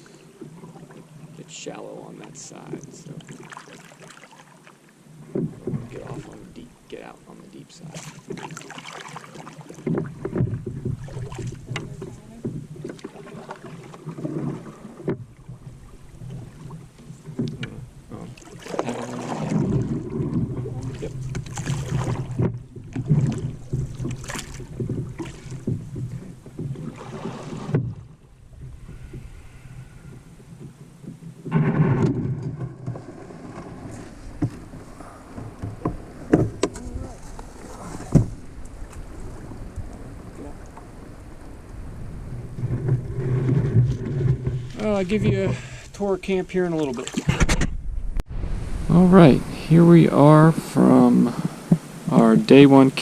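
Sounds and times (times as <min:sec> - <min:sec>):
canoe hull scraping onto shore: 0:00.0 - 0:53.0
water splashing around paddles: 0:00.0 - 0:53.0
knocks against boat: 0:09.8 - 0:17.9, 0:18.7 - 0:29.3, 0:30.1 - 0:38.4.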